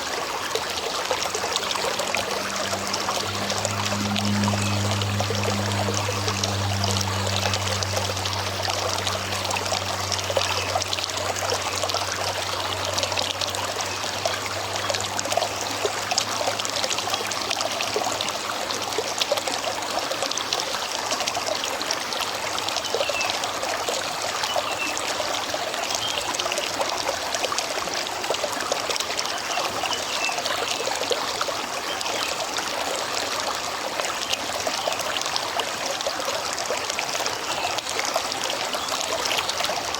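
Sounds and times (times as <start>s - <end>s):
river water running and trickling: 0.0s - 39.9s
small water splashes: 0.0s - 39.9s
low hum: 0.6s - 18.8s.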